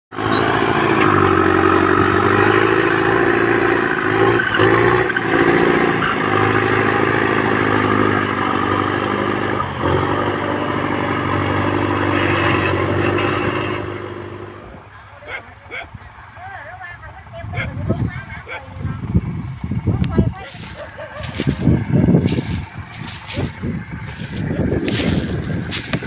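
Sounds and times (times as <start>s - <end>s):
tractor engine under load: 0.1s - 26.0s.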